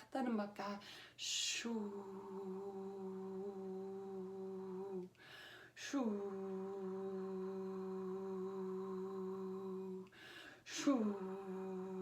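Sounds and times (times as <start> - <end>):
breath: 0.8 - 1.2, 5.1 - 5.8, 10.1 - 10.7.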